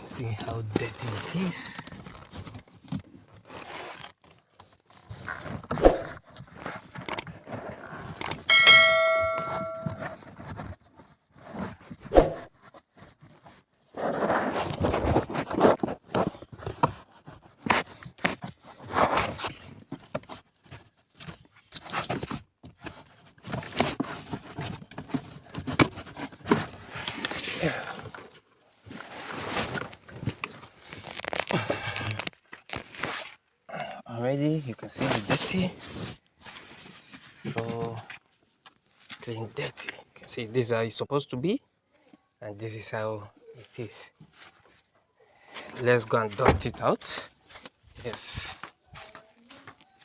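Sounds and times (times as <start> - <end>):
metallic ding: 8.5 - 10.2.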